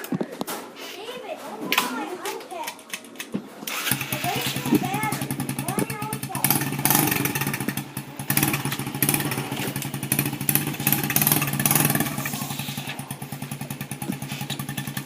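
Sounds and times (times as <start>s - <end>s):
motorcycle engine idling: 3.8s - 15.0s.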